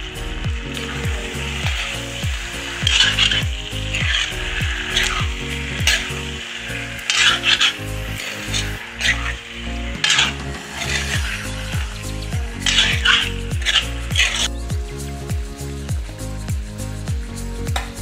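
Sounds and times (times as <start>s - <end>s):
chicken sizzling in oil: 0.0s - 16.8s
background music beat: 0.0s - 18.0s
metal spoon scraping pan: 7.0s - 9.4s, 10.0s - 14.5s.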